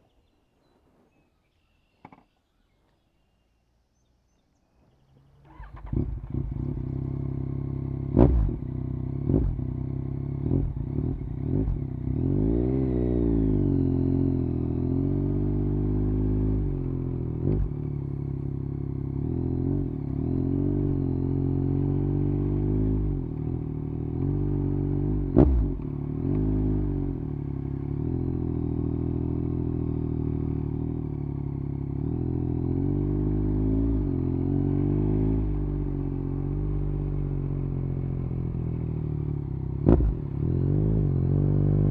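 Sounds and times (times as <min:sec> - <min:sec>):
motorcycle engine revving: 0:05.2 - 0:41.9.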